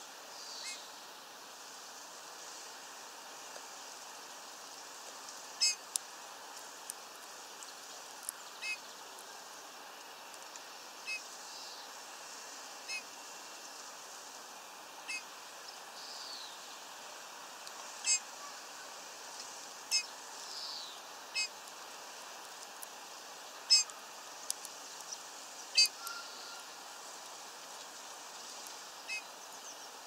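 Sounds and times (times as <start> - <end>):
steady hiss: 0.0 - 30.0
songbird calls: 0.3 - 1.0, 5.5 - 5.9, 7.7 - 9.2, 10.7 - 11.9, 12.8 - 13.1, 15.0 - 16.7, 17.8 - 19.0, 19.9 - 21.6, 23.4 - 24.1, 25.0 - 26.9, 27.8 - 30.0.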